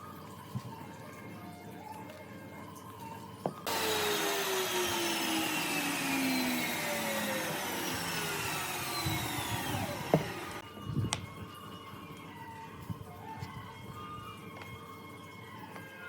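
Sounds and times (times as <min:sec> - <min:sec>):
electric power tool whine: 0:03.6 - 0:10.6.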